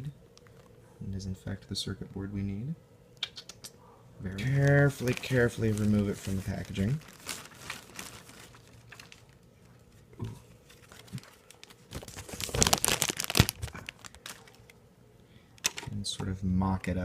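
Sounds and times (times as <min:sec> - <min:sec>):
packaging crinkling and tearing: 0:04.3 - 0:10.0, 0:10.6 - 0:14.8.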